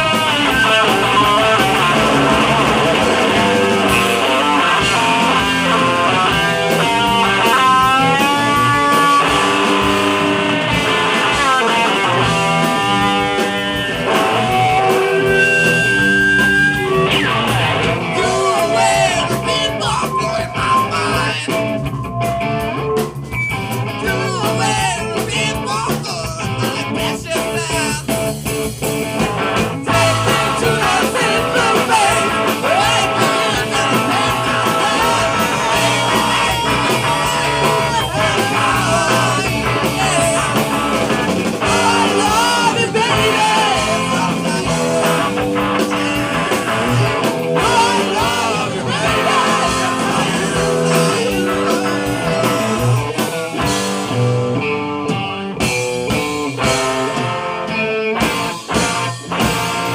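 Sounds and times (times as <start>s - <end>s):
drums: 0.0s - 59.9s
electric guitar: 0.0s - 59.9s
person singing: 17.9s - 21.7s, 29.9s - 53.9s.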